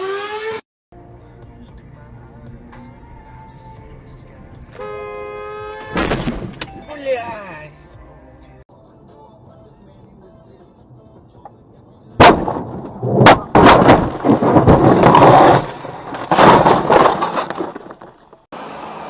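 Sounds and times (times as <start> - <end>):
vehicle crash bang: 5.9 - 6.7, 12.2 - 18.4
hard impacts: 12.2 - 18.4
crunching scraping metal: 12.2 - 18.5.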